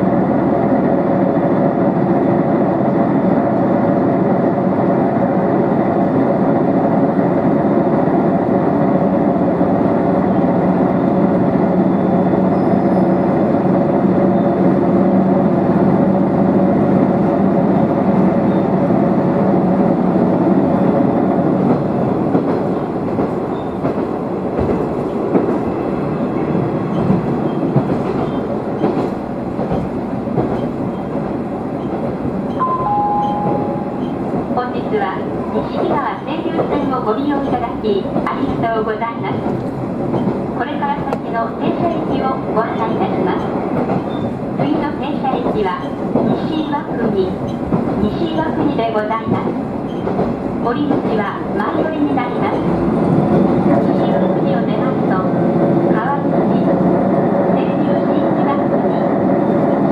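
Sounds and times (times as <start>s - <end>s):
train engine drone: 0.0s - 59.9s
two-note chime: 32.6s - 34.2s.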